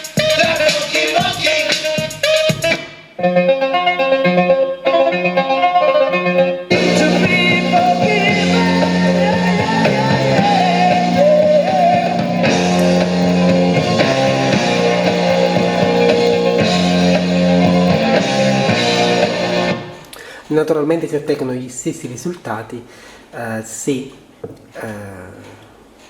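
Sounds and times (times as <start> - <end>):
rock song over loudspeaker: 0.0 - 3.4, 6.7 - 19.9.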